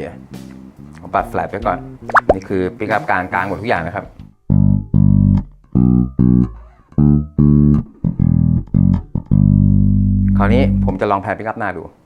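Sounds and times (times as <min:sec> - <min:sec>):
electric bass notes: 0:04.2 - 0:11.1.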